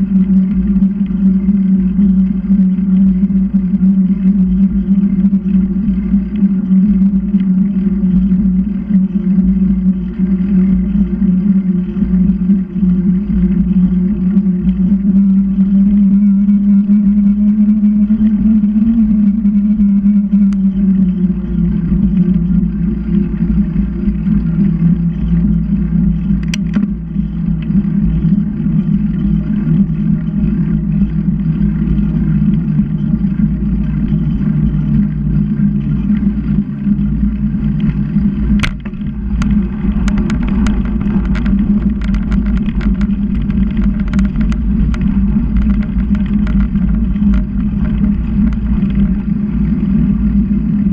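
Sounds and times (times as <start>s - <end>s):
motor hum: 0.0s - 50.9s
wind and road noise: 26.4s - 50.9s
clicks and rattles: 37.7s - 49.3s.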